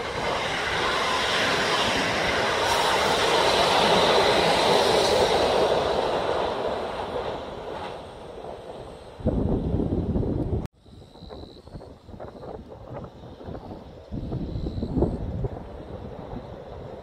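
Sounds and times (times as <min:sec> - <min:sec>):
train wheels rushing on rails: 0:00.0 - 0:10.7.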